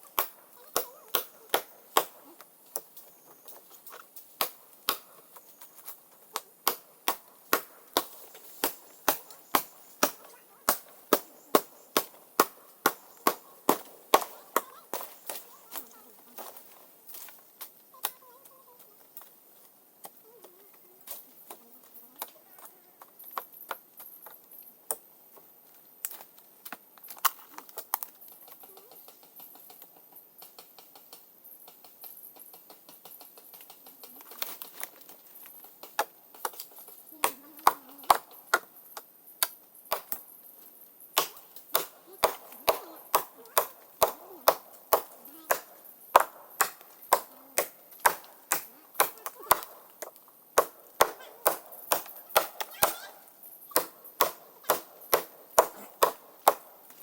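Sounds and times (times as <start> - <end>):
blade chopping wood: 41.2 - 53.1, 53.7 - 57.0.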